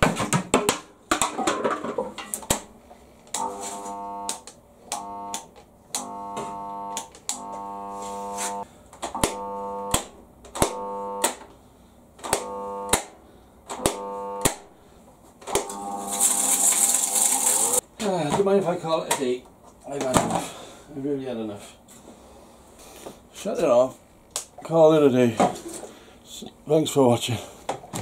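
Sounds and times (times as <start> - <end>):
electrical buzz: 3.4 - 8.6, 9.2 - 11.4, 12.2 - 14.7, 15.5 - 17.8
switch clicks: 12.2 - 13.1, 13.7 - 14.6.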